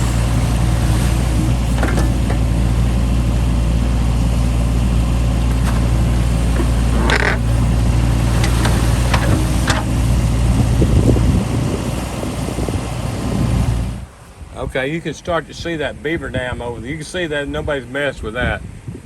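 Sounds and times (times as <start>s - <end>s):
diesel engine droning: 0.0s - 17.7s
short knocks: 0.7s - 2.9s.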